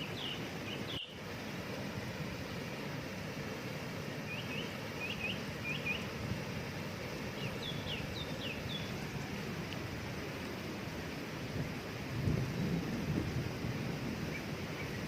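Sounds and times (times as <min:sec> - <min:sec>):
small bird singing: 0:00.0 - 0:01.2, 0:04.3 - 0:06.2, 0:07.2 - 0:09.3
waterfall rushing: 0:00.0 - 0:15.0.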